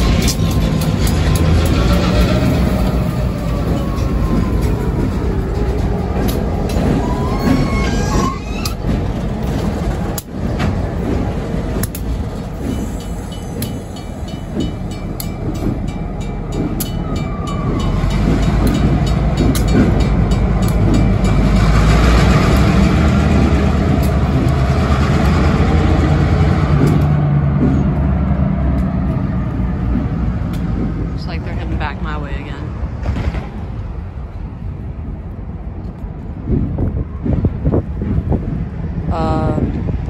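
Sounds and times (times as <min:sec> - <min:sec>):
wheels clicking over rail joints: 0:00.0 - 0:31.8
diesel locomotive engine: 0:00.0 - 0:40.0.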